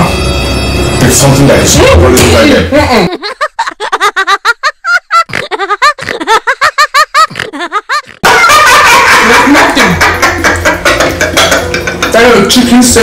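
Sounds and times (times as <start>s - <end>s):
high-pitched giggling laugh: 2.8s - 12.1s.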